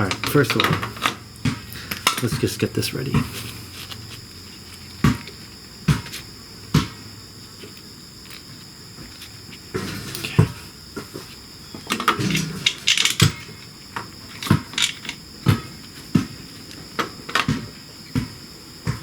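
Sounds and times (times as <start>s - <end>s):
metal parts and tools clinking: 11.9s - 13.6s, 14.3s - 15.2s.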